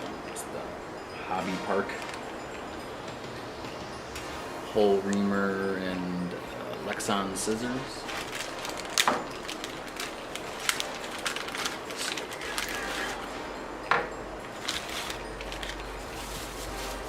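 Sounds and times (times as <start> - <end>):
packaging crinkling: 8.0 - 13.4, 14.5 - 17.0.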